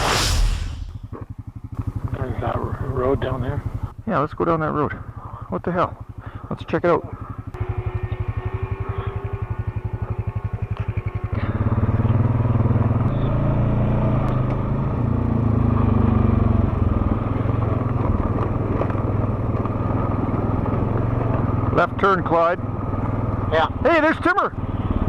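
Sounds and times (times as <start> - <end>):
quad bike engine revving: 7.2 - 25.0.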